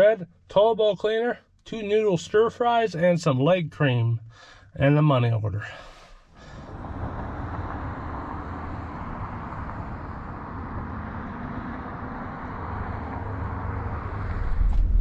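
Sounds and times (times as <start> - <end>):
car road and engine noise: 5.6 - 15.0.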